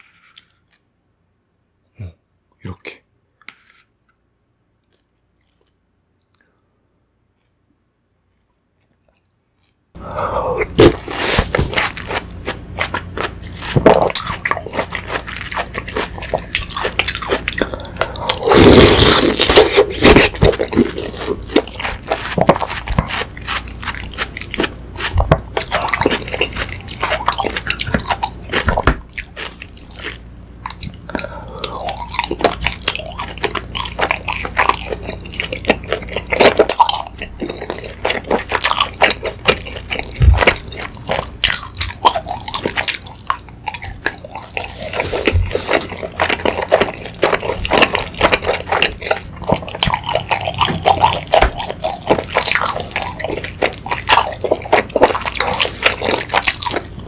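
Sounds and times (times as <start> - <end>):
wet chewing and mouth smacking: 10.6 - 57.0.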